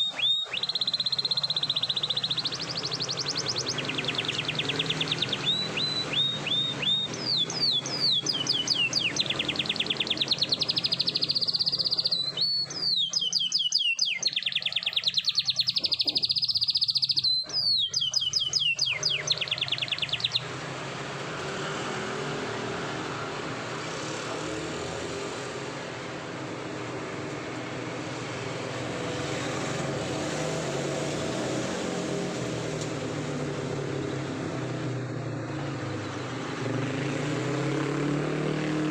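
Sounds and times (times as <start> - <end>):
canary singing trills: 0.0 - 26.5.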